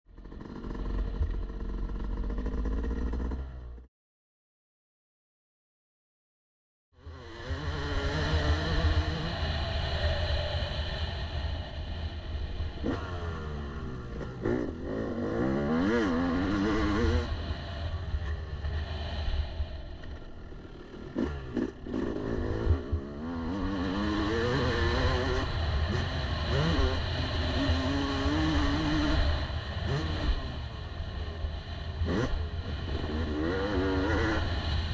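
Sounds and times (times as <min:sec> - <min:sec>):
two-stroke motocross engine revving: 0:00.1 - 0:03.8, 0:07.0 - 0:09.6, 0:12.7 - 0:17.4, 0:20.4 - 0:30.7, 0:32.0 - 0:34.8.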